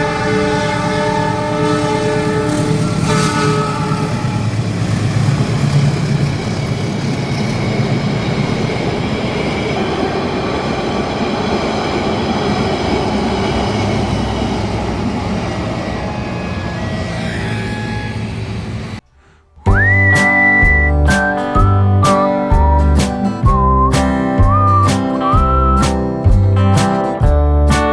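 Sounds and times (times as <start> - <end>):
train horn: 0.0 - 4.8, 16.0 - 18.8
train wheels rumbling on rails: 0.0 - 19.0, 19.7 - 27.9.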